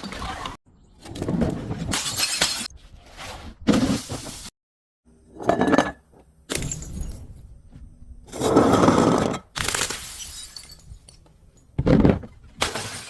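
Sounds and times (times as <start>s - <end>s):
glass breaking and crunching: 1.9s - 2.7s, 9.5s - 11.2s, 12.6s - 13.0s.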